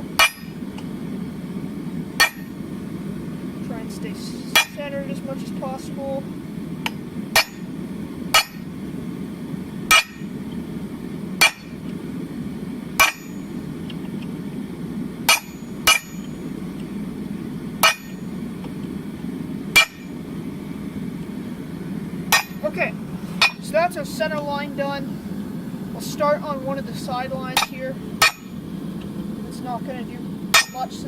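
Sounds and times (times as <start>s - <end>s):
hammer striking hot steel: 0.0s - 0.9s, 2.2s - 2.7s, 4.5s - 5.0s, 6.8s - 8.7s, 9.8s - 10.6s, 11.4s - 11.9s, 12.9s - 14.2s, 15.2s - 16.9s, 17.8s - 18.8s, 19.7s - 20.2s, 22.3s - 22.8s, 23.4s - 23.7s, 27.4s - 28.6s, 30.5s - 31.0s
steady low hum: 0.0s - 31.0s.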